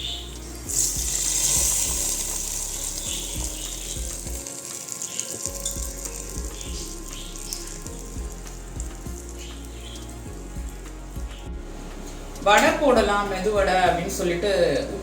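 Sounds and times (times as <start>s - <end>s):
food sizzling in hot oil: 0.0s - 11.5s
soft background music: 0.0s - 15.0s.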